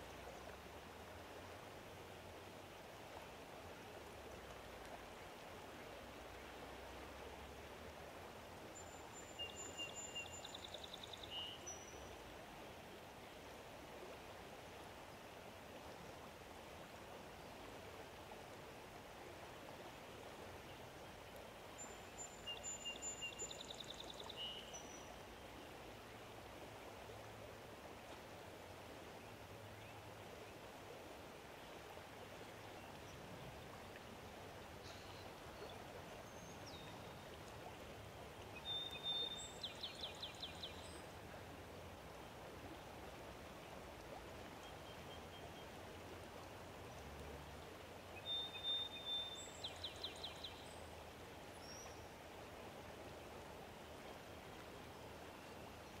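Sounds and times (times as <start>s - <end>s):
faint outdoor hiss: 0.0s - 56.0s
songbird singing: 8.8s - 12.2s, 20.7s - 25.7s, 34.8s - 37.4s, 38.5s - 41.4s, 44.6s - 45.8s, 48.1s - 51.0s, 51.6s - 52.1s
faint bird chirps: 34.8s - 35.8s.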